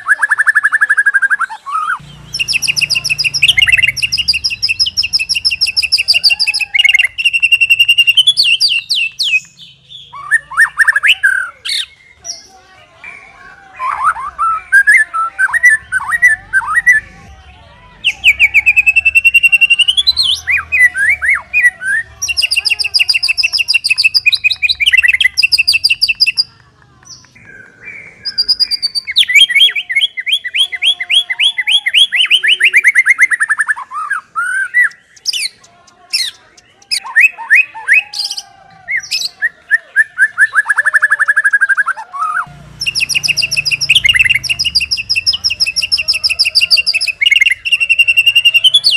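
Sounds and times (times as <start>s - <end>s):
bird singing whistled trills: 0.0s - 12.4s, 39.0s - 48.9s.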